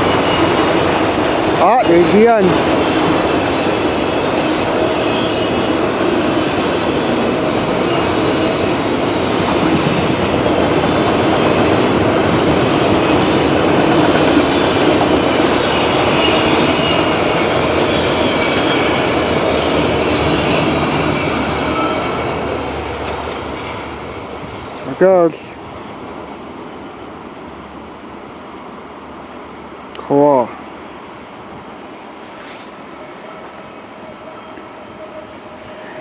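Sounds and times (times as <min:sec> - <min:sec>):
freight train rolling past: 0:00.0 - 0:36.0.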